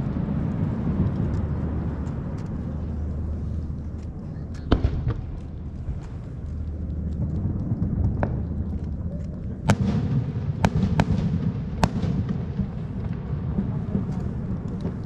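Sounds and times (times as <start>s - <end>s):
fireworks rumble: 0.0s - 15.0s
fireworks sharp bangs: 4.6s - 8.7s, 9.6s - 15.0s.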